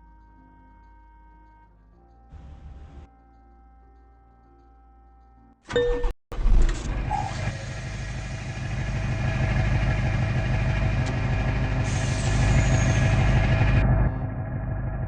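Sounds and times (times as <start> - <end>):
truck engine running: 6.6 - 15.0
hiss: 11.8 - 13.0.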